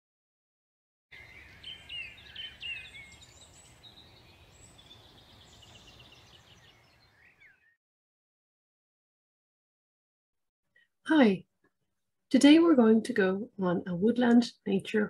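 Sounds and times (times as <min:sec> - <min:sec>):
songbirds singing: 0:01.1 - 0:07.8.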